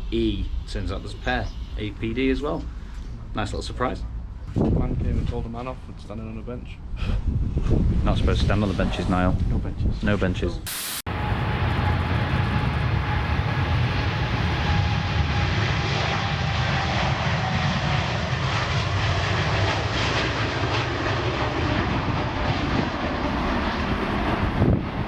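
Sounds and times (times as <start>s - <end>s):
jet engines roaring: 11.1s - 25.0s.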